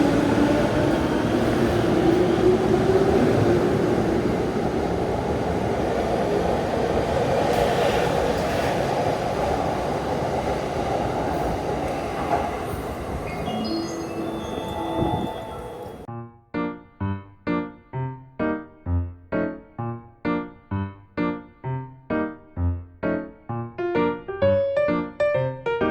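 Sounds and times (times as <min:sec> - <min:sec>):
train wheel and rail noise: 0:00.0 - 0:16.1.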